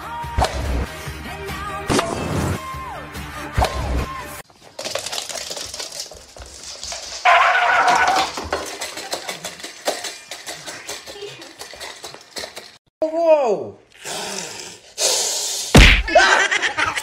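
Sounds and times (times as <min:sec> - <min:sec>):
dog eating from metal bowl: 0:08.2 - 0:12.8.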